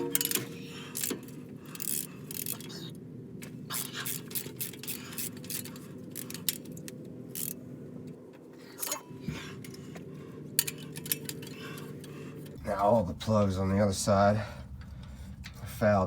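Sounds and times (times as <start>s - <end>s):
steady low hum: 0.0s - 16.0s
metallic clicks of hand tools: 10.6s - 11.9s.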